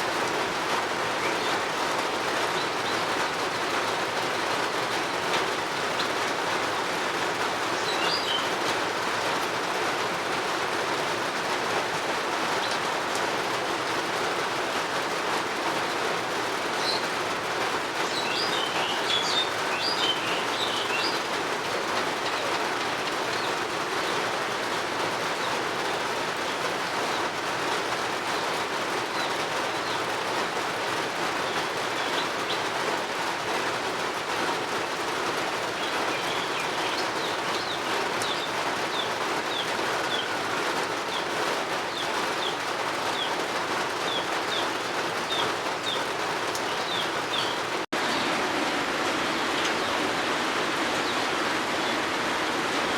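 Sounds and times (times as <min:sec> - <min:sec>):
steady rain falling: 0:00.0 - 0:52.9
birds chirping: 0:07.7 - 0:08.7, 0:16.6 - 0:17.2, 0:17.9 - 0:24.3, 0:28.4 - 0:30.6, 0:31.3 - 0:33.1, 0:34.2 - 0:48.7, 0:49.3 - 0:52.8.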